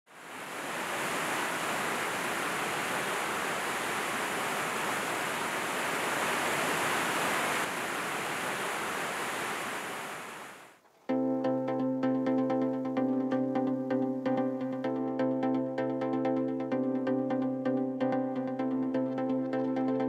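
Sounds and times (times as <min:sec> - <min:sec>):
stream water rushing: 0:00.1 - 0:10.8.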